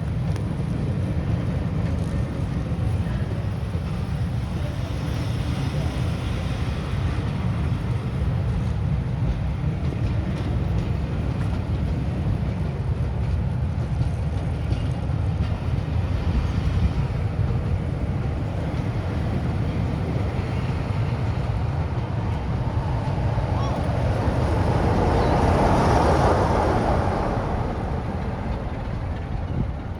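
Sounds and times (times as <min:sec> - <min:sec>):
train rumbling past: 0:00.0 - 0:29.9.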